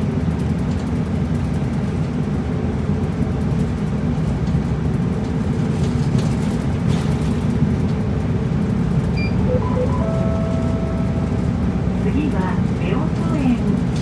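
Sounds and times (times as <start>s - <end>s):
bus engine and road noise: 0.0s - 14.0s
electronic chime: 9.2s - 11.4s.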